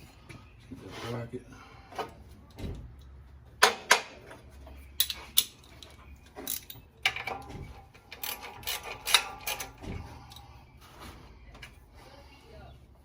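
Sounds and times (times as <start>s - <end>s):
metal tools clanking: 3.0s - 10.6s.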